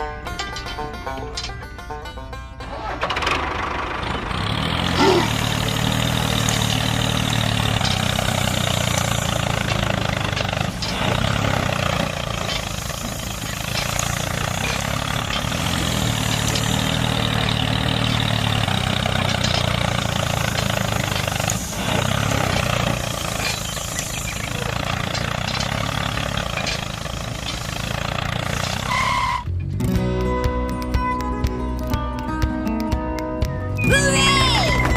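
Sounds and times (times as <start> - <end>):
small engine running: 2.8 - 29.4.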